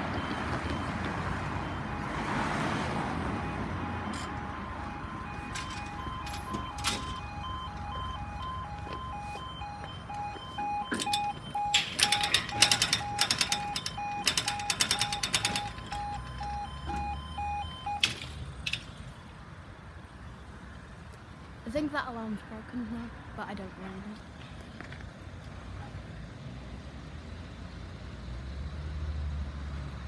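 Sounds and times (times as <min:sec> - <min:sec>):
level crossing alarm beeping: 0:00.0 - 0:19.1.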